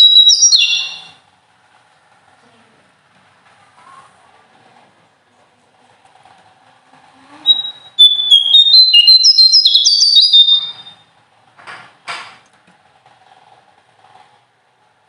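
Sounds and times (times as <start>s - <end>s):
short harsh bird notes: 0.0s - 1.2s, 7.4s - 11.0s
songbird singing whistled notes: 0.0s - 1.2s, 7.4s - 11.0s.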